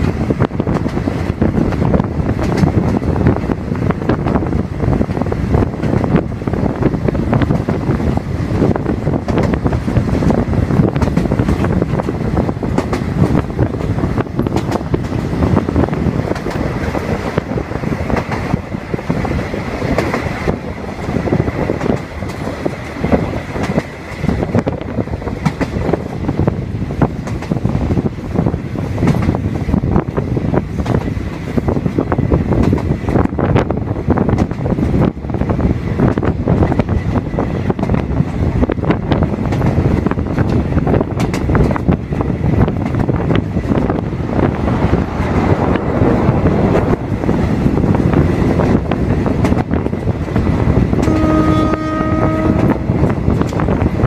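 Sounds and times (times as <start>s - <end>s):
clacks over rail joints: 0.0s - 51.8s, 52.5s - 54.0s
train wheels rumbling on rails: 0.0s - 54.0s.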